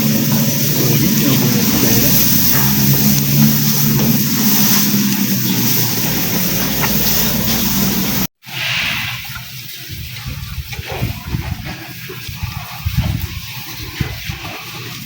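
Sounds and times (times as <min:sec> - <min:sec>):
motor engine running: 0:00.0 - 0:08.3
noisy hiss: 0:00.0 - 0:15.0
rough uneven noise: 0:00.0 - 0:15.0.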